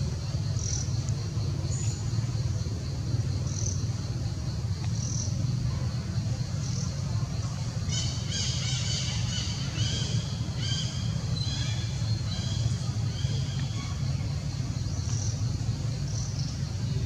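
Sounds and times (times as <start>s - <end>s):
steady low rumble: 0.0s - 17.0s
birds calling: 6.6s - 17.0s.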